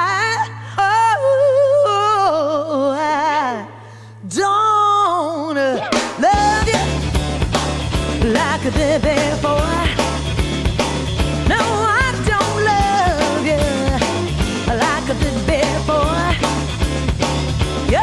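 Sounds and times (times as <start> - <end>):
blues-rock lead guitar: 5.6 - 18.0
blues-rock band with drums: 5.8 - 18.0
held bass note: 6.4 - 18.0.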